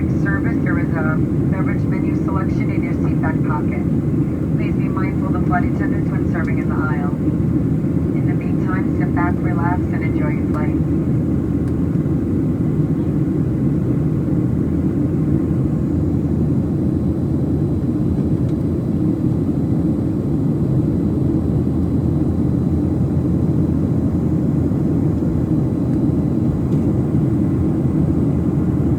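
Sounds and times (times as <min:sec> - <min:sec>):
airplane cabin jet engine drone: 0:00.0 - 0:28.9.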